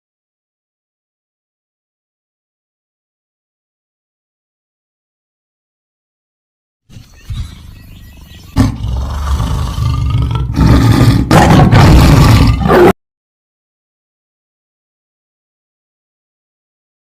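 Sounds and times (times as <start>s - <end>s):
big cat deep roar: 8.6s - 12.9s
big cat low growl: 8.6s - 12.9s.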